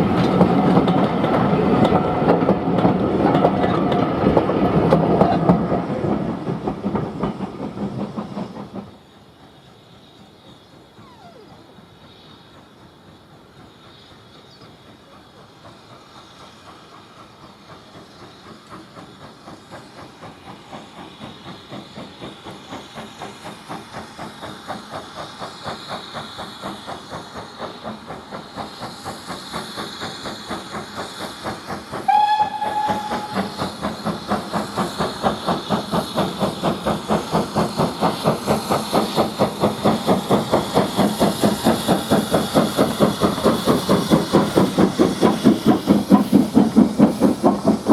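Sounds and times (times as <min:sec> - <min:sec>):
steam locomotive exhaust beats: 0:00.0 - 0:47.9
train whistle blast: 0:32.1 - 0:33.8.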